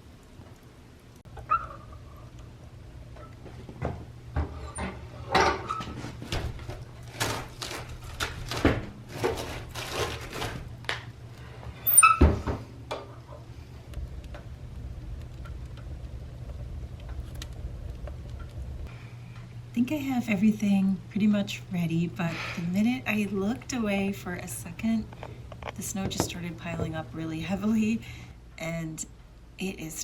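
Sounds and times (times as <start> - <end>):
steady low hum: 0.0 - 30.0
objects knocking and clattering: 3.2 - 11.1.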